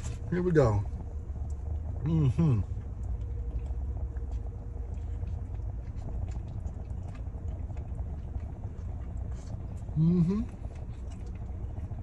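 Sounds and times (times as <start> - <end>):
low rumble in car cabin: 0.0 - 12.0
person chewing food: 2.6 - 12.0.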